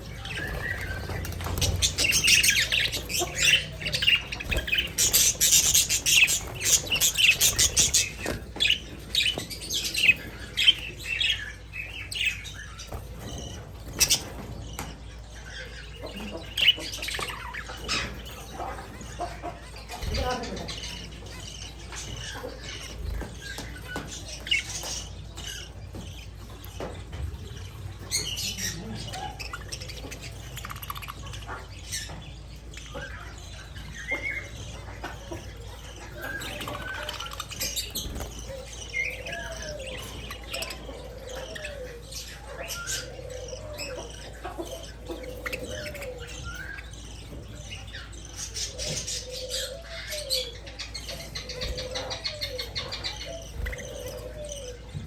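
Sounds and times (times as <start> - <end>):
budgerigars chirping and chattering: 0.0 - 55.0.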